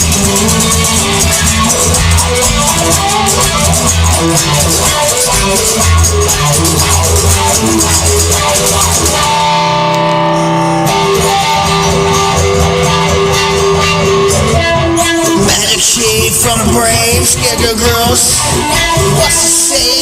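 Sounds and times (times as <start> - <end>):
instrumental rock music: 0.0 - 20.0.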